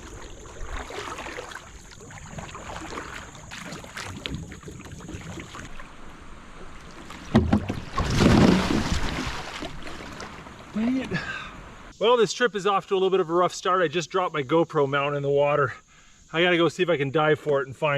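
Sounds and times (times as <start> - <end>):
paddle swishing in water: 0.0 - 11.1.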